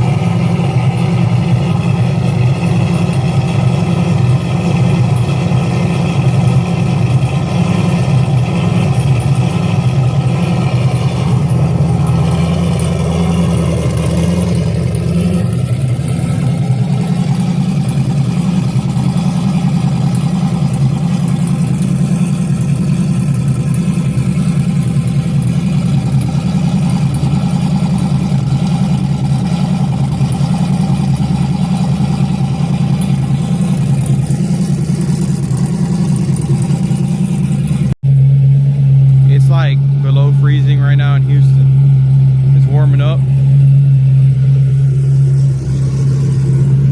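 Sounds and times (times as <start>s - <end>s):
engine running steadily: 0.0s - 46.9s.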